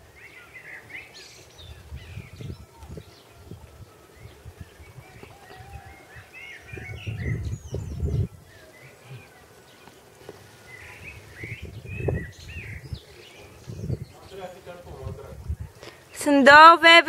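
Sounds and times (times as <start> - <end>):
birds chirping: 0.0 - 17.0
low rumbling bursts on microphone: 1.5 - 9.4, 10.6 - 15.8.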